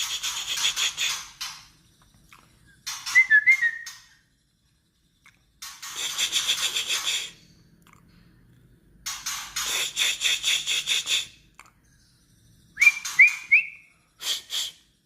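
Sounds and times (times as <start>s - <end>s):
bird rattling call: 0.0s - 1.8s, 2.8s - 4.2s, 5.6s - 7.4s, 9.0s - 11.3s
clear whistled bird notes: 2.9s - 4.3s, 10.0s - 14.8s.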